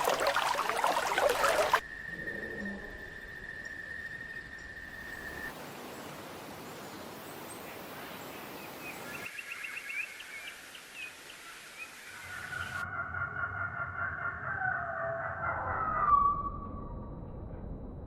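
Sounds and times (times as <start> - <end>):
steady outdoor hiss: 0.0 - 12.8.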